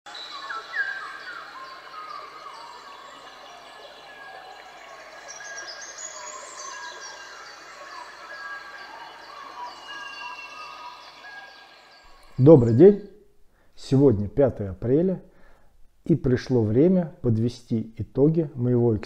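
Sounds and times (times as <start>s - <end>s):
small birds singing and chirping: 0.1s - 13.1s
faint background noise: 0.1s - 19.0s.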